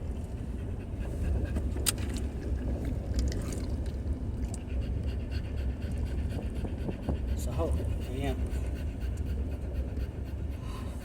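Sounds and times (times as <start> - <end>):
dog panting: 0.0 - 2.0, 4.4 - 11.0
constant low rumble: 0.0 - 11.0.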